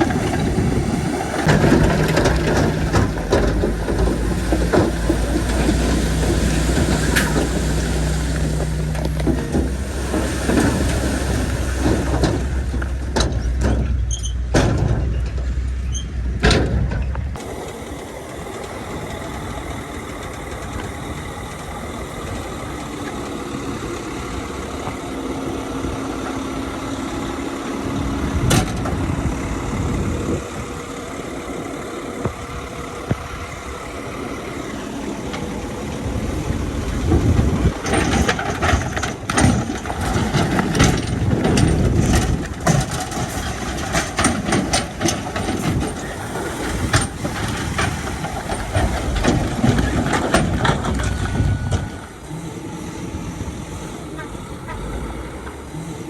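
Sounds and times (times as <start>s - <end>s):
diesel machinery rumbling: 0.0s - 56.0s.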